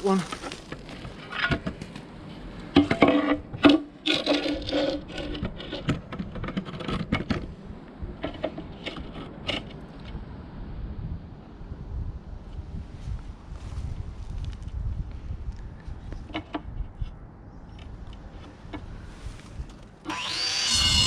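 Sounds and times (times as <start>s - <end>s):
paving slab scraping and knocking: 0.2s - 2.1s, 2.7s - 7.6s.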